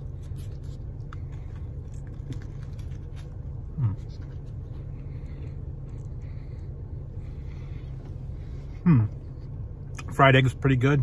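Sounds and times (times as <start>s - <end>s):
person chewing: 0.0s - 10.1s
car cabin hum: 0.0s - 11.0s
person humming mmm: 8.8s - 9.2s.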